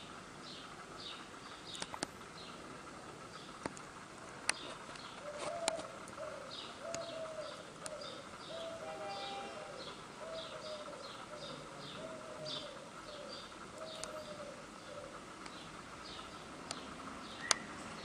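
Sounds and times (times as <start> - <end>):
sharp clicks: 1.4 - 2.2, 3.3 - 6.2, 6.9 - 7.2, 7.8 - 8.0, 13.6 - 14.2, 15.4 - 17.7
bird hooting: 5.0 - 16.5.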